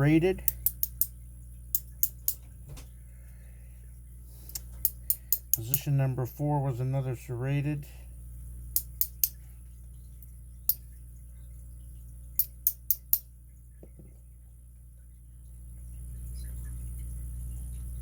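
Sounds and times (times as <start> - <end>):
low steady hum: 0.0 - 18.0
padlock parts clicking: 0.5 - 1.1, 1.8 - 2.4, 8.8 - 9.4, 12.4 - 13.2.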